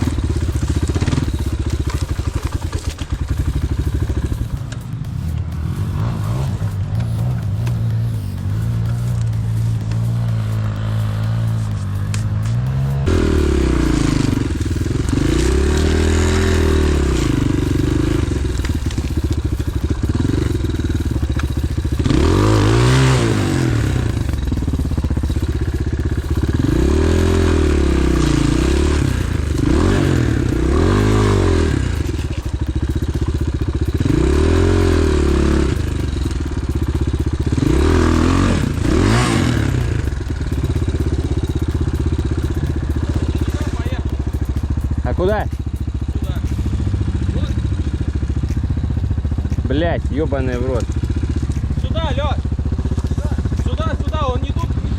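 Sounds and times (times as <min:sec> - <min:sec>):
scraping and clattering over ground: 0:00.0 - 0:34.2
motorcycle engine revving: 0:00.0 - 0:54.9.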